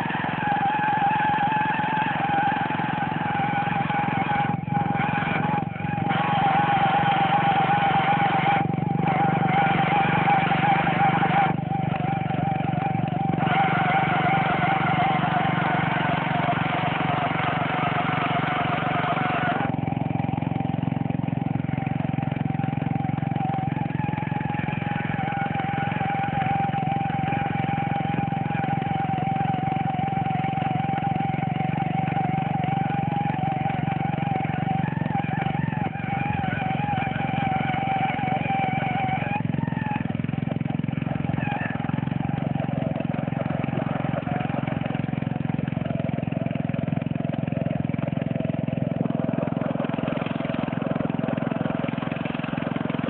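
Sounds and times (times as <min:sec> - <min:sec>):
lawnmower engine running: 0:00.0 - 0:53.0
steady whine: 0:00.0 - 0:53.0.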